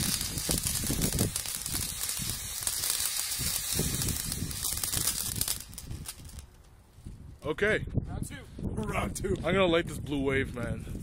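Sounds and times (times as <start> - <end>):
firework crackling and hissing: 0.0 - 7.3.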